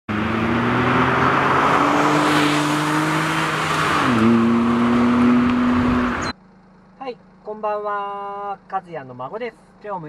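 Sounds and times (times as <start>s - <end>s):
small car engine accelerating: 0.1s - 6.4s.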